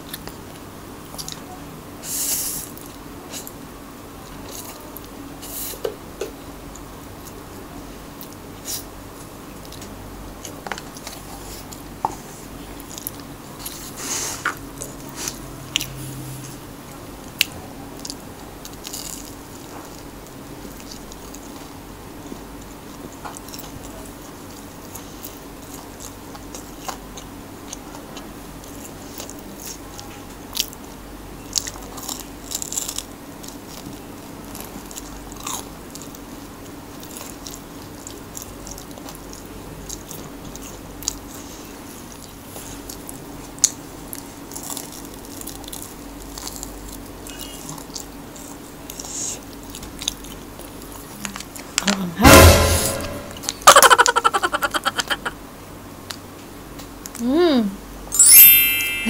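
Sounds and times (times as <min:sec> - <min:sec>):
crunchy bites and chewing: 0:18.0 - 0:20.1, 0:31.5 - 0:41.4, 0:42.1 - 0:51.6.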